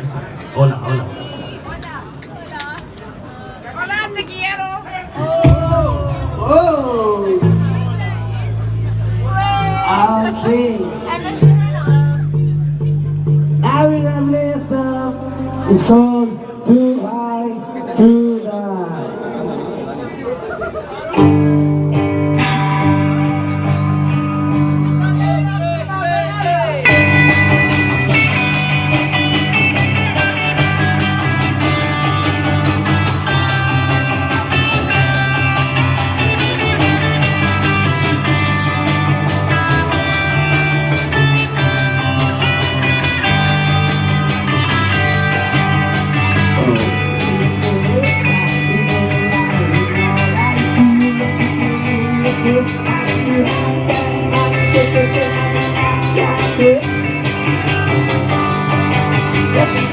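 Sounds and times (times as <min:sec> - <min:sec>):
rock band playing: 0:05.1 - 0:16.2, 0:21.1 - 0:59.9
electric guitars: 0:05.2 - 0:16.4, 0:20.5 - 0:59.9
drum beat: 0:05.3 - 0:08.1.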